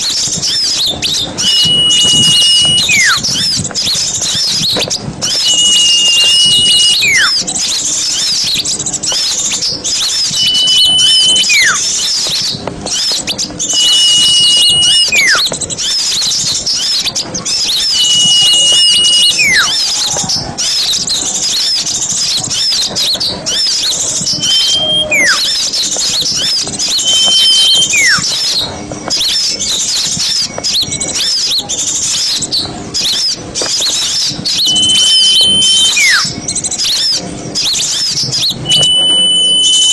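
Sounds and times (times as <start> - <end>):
flock of small birds chirping: 0.0 - 39.9
whistled note dropping in pitch: 1.4 - 3.3, 5.3 - 7.4, 10.3 - 11.8, 13.7 - 15.5, 17.7 - 19.8, 24.2 - 25.6, 26.8 - 28.4, 34.6 - 36.3, 38.6 - 39.9.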